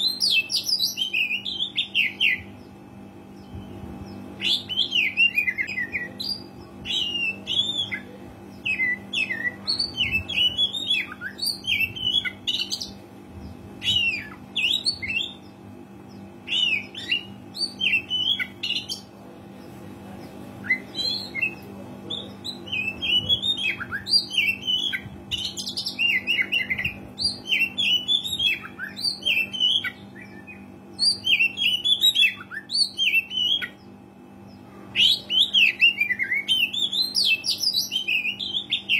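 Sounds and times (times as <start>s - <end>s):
faint steady hum: 0.0s - 38.9s
bird singing whistled phrases: 35.0s - 38.9s.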